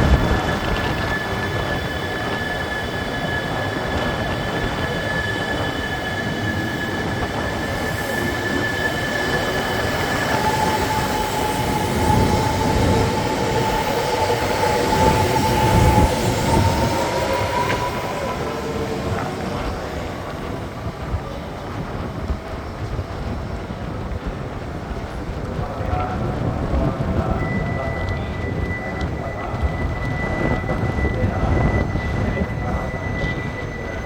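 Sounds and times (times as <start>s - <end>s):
electric train motor whining: 0.0s - 23.8s
train wheels rumbling on rails: 0.0s - 34.0s.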